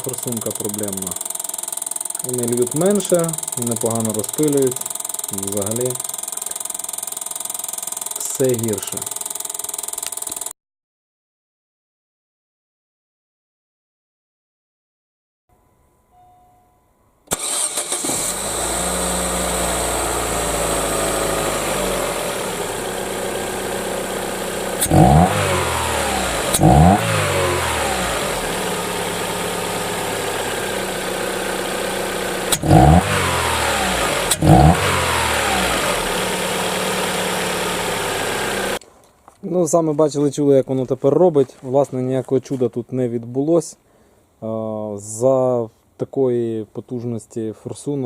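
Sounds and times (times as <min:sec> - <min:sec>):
person speaking: 0:00.0 - 0:01.2, 0:02.2 - 0:06.0, 0:08.2 - 0:09.1
car engine idling and revving: 0:17.4 - 0:38.8.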